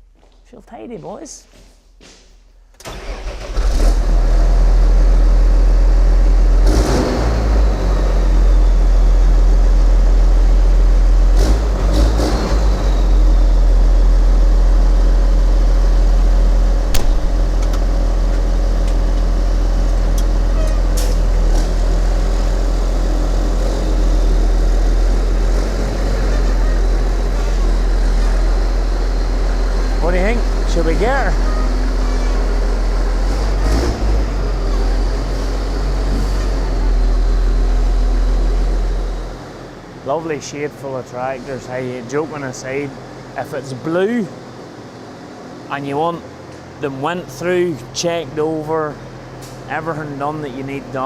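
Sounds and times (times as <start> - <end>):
tractor diesel engine running: 2.8 - 51.0
sharp clunks: 16.9 - 17.8.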